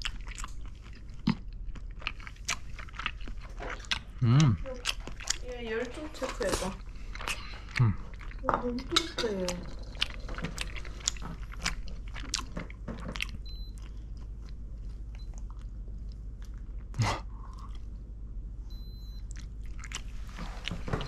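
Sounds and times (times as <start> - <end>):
crunching and chewing snacks: 0.0 - 8.5, 9.5 - 17.9
digital thermometer beeps: 13.4 - 13.8, 18.7 - 19.3.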